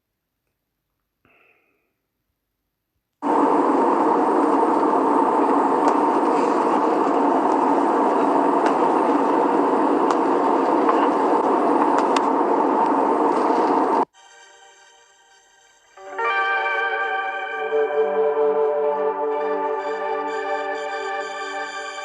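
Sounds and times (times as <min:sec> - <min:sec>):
loud rushing drone: 0:03.2 - 0:14.1.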